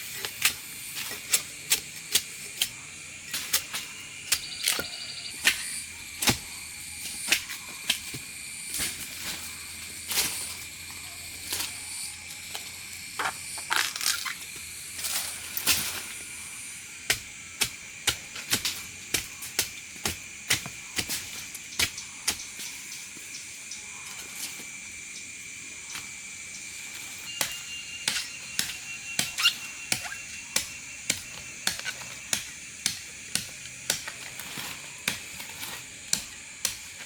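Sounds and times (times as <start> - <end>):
steady high-pitched hum: 25.0 - 33.6
sharp knocks and cracks: 27.3 - 37.0.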